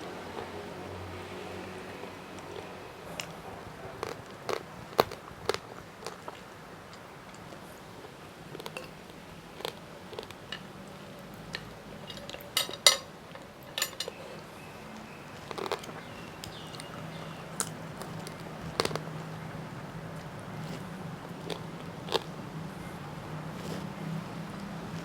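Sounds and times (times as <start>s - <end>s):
tableware clinking: 8.8s - 9.0s, 11.6s - 14.3s.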